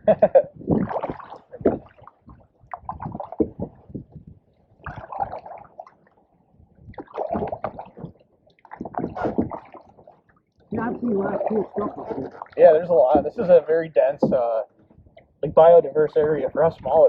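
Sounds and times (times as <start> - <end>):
canoe paddle splashing in water: 0.8 - 3.8, 4.8 - 6.0, 6.9 - 10.3.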